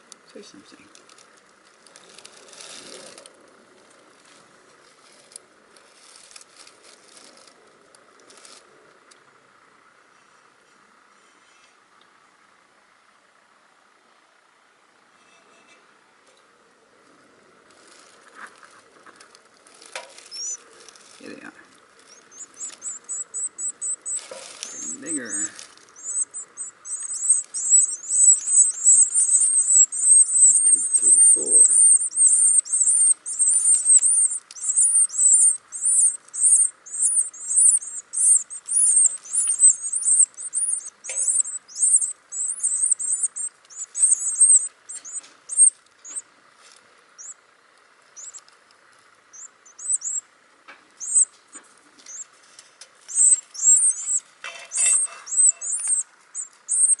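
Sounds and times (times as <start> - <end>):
baby birds chirping: 17.8 - 46.3, 47.2 - 47.4, 48.0 - 48.5, 49.3 - 50.3, 50.9 - 57.0.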